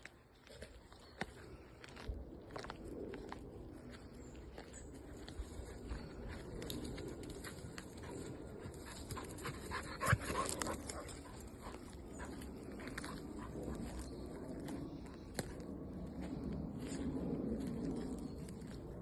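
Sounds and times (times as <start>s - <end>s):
dog panting: 5.8s - 14.7s.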